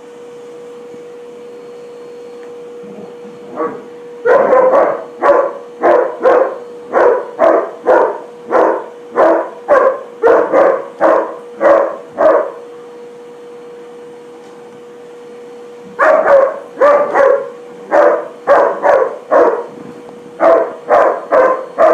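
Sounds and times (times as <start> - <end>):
steady hum: 0.0 - 21.9
dog barking rapidly: 3.6 - 12.6, 16.0 - 19.8, 20.4 - 21.9.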